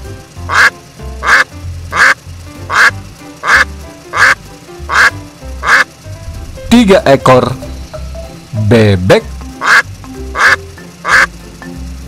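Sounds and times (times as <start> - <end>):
background music with bass line: 0.0 - 12.0
duck quacking: 0.4 - 5.9, 9.6 - 11.3.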